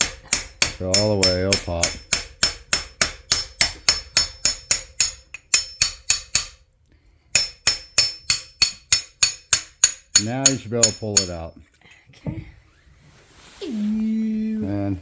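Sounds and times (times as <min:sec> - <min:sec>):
hammer striking metal: 0:00.0 - 0:06.6, 0:07.4 - 0:11.4.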